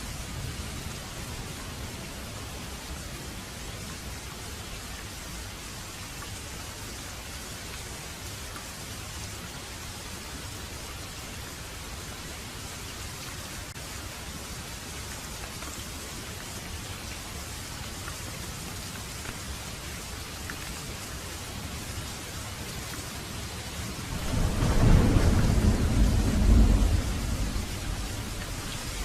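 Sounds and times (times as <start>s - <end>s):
heavy rain falling: 0.0s - 29.0s
deep thunder rolling: 23.9s - 29.0s.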